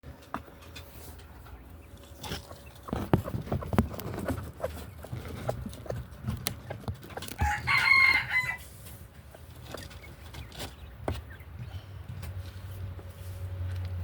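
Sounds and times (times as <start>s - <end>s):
rooster crowing: 7.4s - 8.7s.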